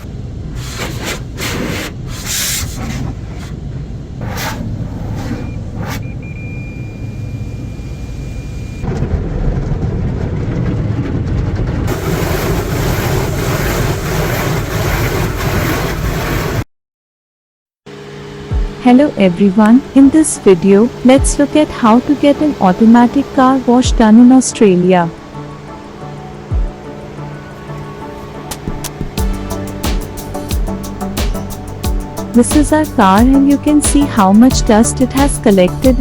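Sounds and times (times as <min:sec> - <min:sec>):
car wash spray passes: 0:00.6 - 0:03.5, 0:11.9 - 0:16.6
thin steady whine: 0:03.2 - 0:08.8, 0:17.9 - 0:36.0
rush of water and air: 0:09.6 - 0:16.6.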